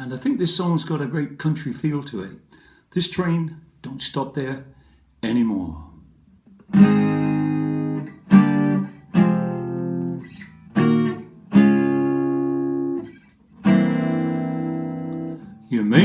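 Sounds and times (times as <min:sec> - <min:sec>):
solo guitar chords ringing: 0:06.7 - 0:16.0.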